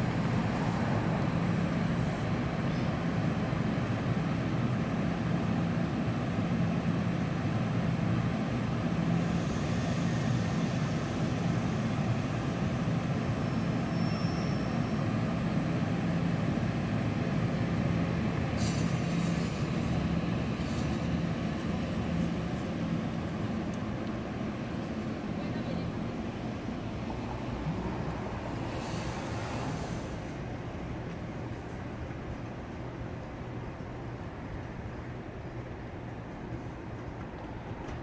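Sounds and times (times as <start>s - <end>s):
train engine hum: 0.0s - 38.0s
high hiss: 28.6s - 30.4s.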